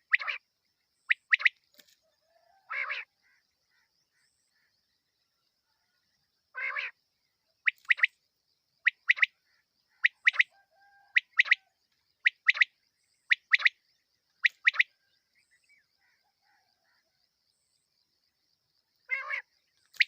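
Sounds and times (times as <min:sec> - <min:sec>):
quail calling: 0:00.0 - 0:00.4, 0:02.4 - 0:04.3, 0:06.6 - 0:07.0, 0:08.8 - 0:12.7, 0:14.4 - 0:14.9, 0:19.1 - 0:20.0.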